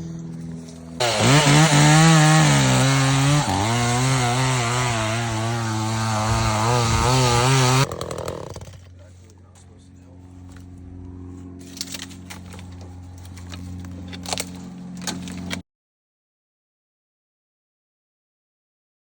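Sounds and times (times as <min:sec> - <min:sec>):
chainsaw running at high revs: 0:01.0 - 0:08.9.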